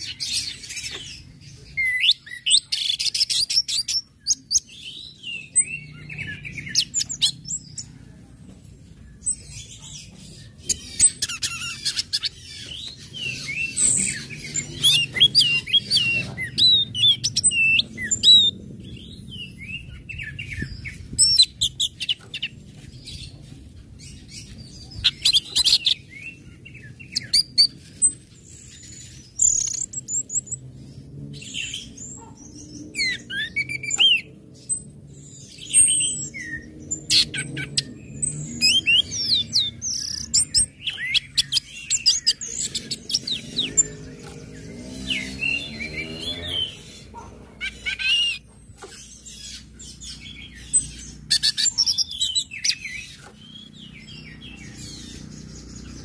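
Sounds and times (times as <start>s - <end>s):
thrush singing chirps and whistles: 25.0s - 30.6s, 32.8s - 47.0s.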